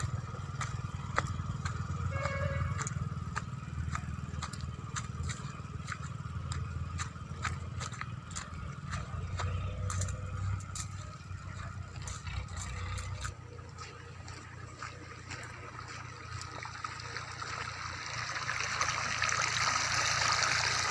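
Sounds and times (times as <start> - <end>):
motorcycle engine droning: 0.0 - 20.9
water pouring and splashing: 9.9 - 20.9.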